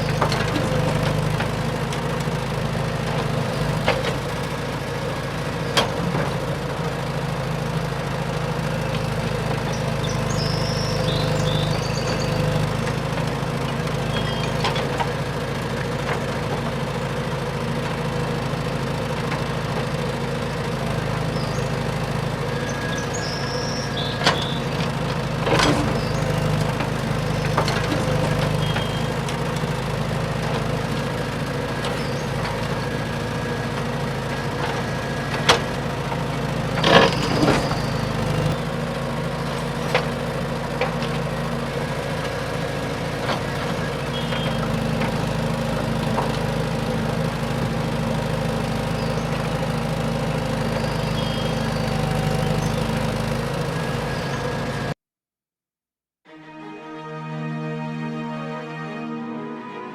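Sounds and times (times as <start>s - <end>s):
toy truck motor hum: 0.0s - 2.4s, 8.5s - 55.0s.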